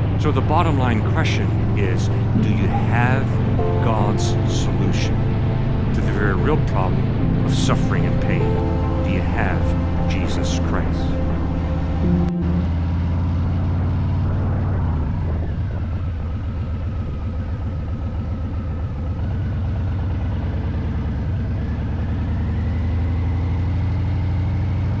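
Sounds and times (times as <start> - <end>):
motorcycle engine running: 11.3 - 25.0.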